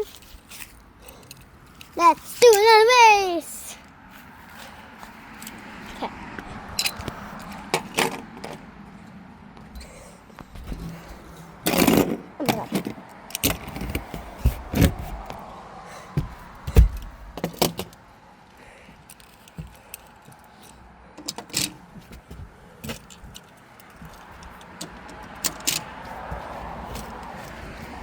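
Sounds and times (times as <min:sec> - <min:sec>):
toy trucks clicking and rattling: 0:00.0 - 0:03.9, 0:04.6 - 0:08.7, 0:09.8 - 0:15.3, 0:16.7 - 0:21.9, 0:22.8 - 0:28.0
heavy thump: 0:16.2 - 0:17.6.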